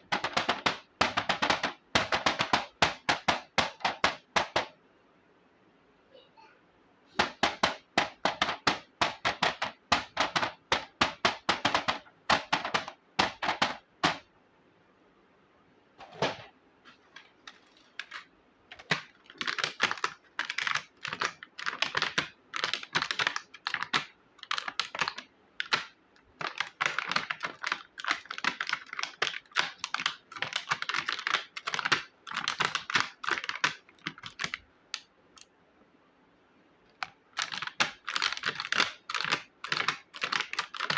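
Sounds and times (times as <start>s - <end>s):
plastic toy pieces clattering: 17.4s - 34.6s, 37.4s - 40.9s.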